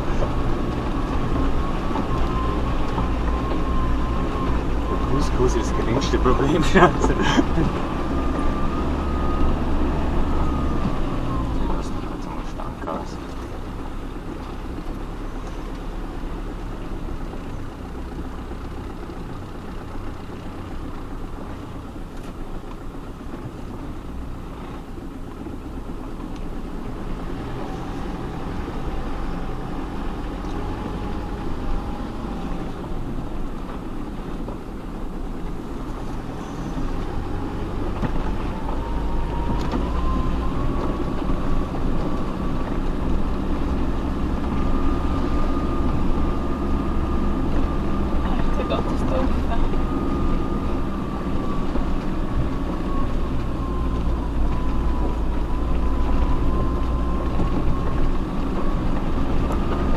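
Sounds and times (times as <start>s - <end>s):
vehicle engine idling: 0.0s - 59.9s
thin whine rising in pitch: 35.9s - 59.9s.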